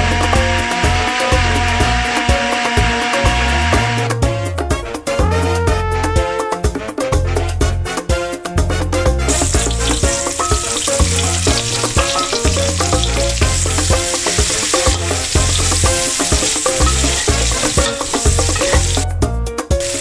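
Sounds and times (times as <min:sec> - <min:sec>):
background music with bass line: 0:00.0 - 0:20.0
spatula scraping a pan: 0:09.3 - 0:19.0
shallots sizzling in oil: 0:09.3 - 0:20.0.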